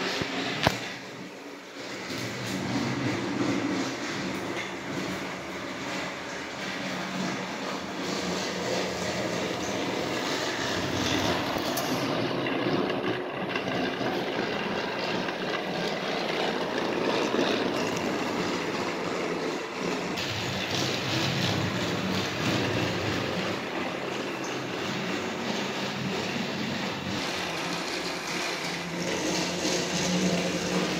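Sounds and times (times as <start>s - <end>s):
toy train motor whir: 0.0s - 30.9s
wheels rattling on plastic track: 0.0s - 30.9s.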